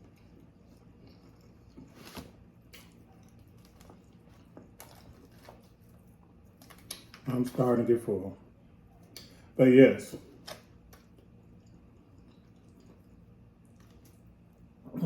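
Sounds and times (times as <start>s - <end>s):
chewing food: 0.0s - 7.3s, 10.1s - 14.8s.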